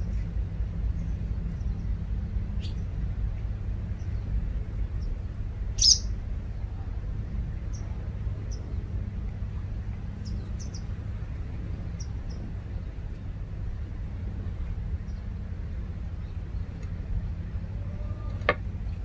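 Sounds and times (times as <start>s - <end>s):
steady low rumble: 0.0s - 19.0s
bird chirps: 5.8s - 6.1s.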